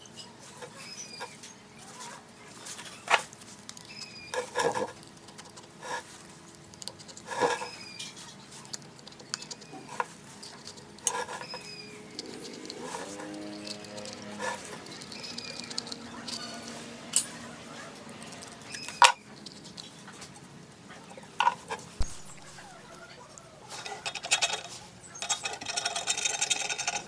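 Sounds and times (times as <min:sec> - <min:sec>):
tools and hard parts clinking: 0:09.3 - 0:17.5, 0:23.8 - 0:27.0
bird chirps: 0:11.4 - 0:12.6, 0:18.6 - 0:19.3.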